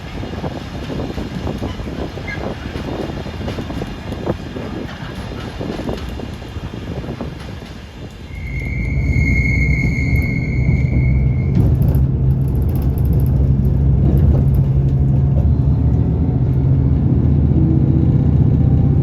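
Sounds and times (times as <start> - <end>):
train rumbling past: 0.0 - 19.0
steady high tone: 8.3 - 11.6
loud low rumble: 8.3 - 19.0
wheels clattering: 11.4 - 15.9.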